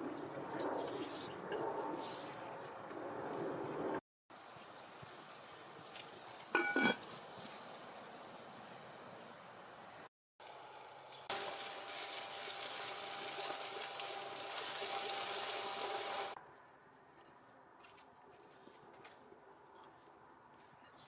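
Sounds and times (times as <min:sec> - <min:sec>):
water running from a tap: 0:10.4 - 0:16.4.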